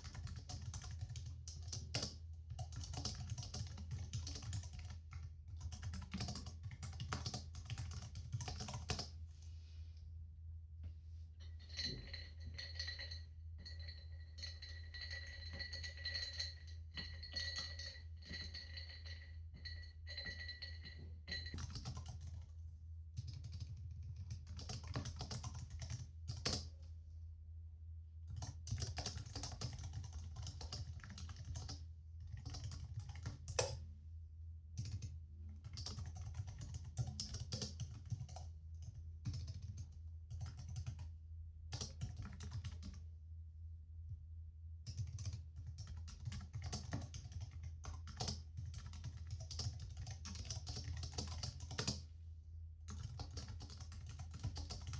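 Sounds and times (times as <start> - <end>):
typing on computer keyboard: 0.0 - 9.2, 20.1 - 22.5, 23.2 - 26.8, 28.3 - 33.8, 34.8 - 41.1, 41.7 - 43.0, 44.9 - 52.1, 52.9 - 54.9
steady low hum: 1.3 - 32.6.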